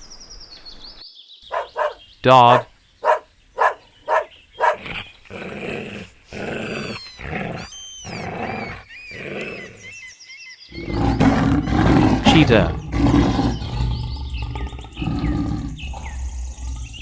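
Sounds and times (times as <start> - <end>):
dog barking: 1.5 - 4.9
dog growling: 1.5 - 9.8.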